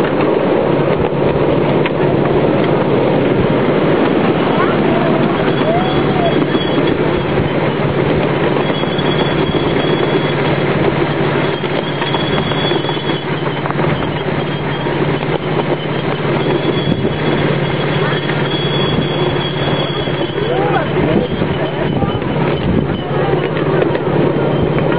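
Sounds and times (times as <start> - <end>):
wheels rumbling on rail: 0.0 - 24.9
faint high wheel squeal: 2.4 - 24.9.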